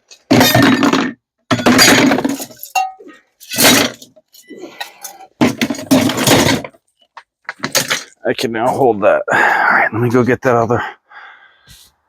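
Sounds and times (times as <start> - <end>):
scrap metal crashing into bin: 0.3 - 2.8, 3.5 - 4.0, 5.4 - 6.7.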